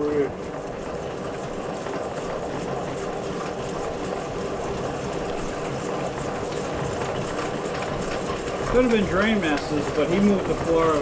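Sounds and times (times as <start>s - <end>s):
machine running: 0.0s - 11.0s.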